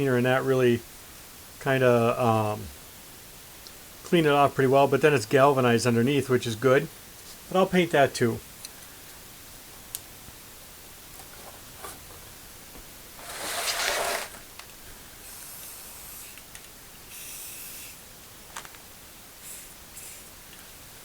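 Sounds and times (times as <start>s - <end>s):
spray paint can hissing: 17.1s - 18.0s, 19.4s - 20.3s.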